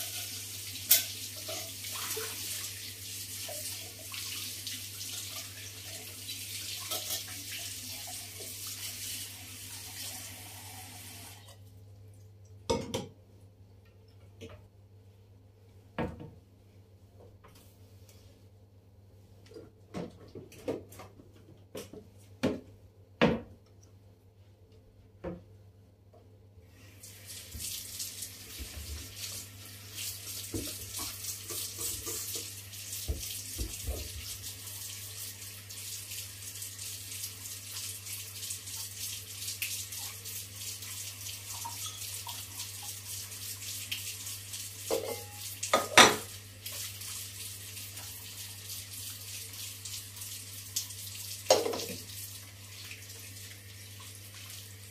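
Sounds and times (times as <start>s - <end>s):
water running into sink: 0.0s - 11.6s, 26.8s - 54.9s
dishes clattering against sink: 12.7s - 13.2s, 44.9s - 46.3s, 51.5s - 52.0s.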